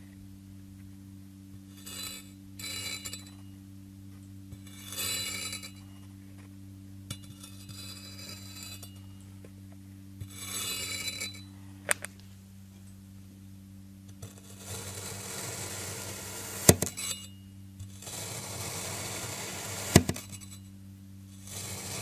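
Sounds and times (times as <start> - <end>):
steady low hum: 0.0 - 22.0
sand being cut crunching: 14.4 - 16.9, 18.0 - 20.2, 21.5 - 22.0.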